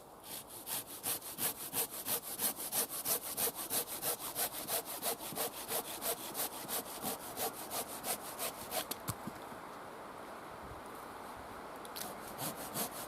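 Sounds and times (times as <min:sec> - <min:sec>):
saw cutting through wood: 0:00.2 - 0:08.9, 0:12.0 - 0:13.0.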